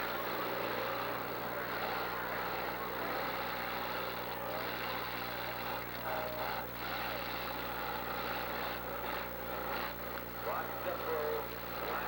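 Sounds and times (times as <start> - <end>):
car engines revving: 0.0 - 5.8.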